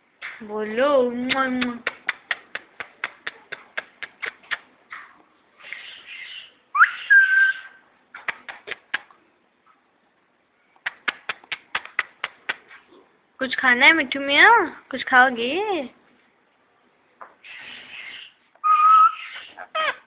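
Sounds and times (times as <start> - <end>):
kiss-like clicks: 1.3 - 5.1, 8.1 - 9.2, 10.8 - 12.8.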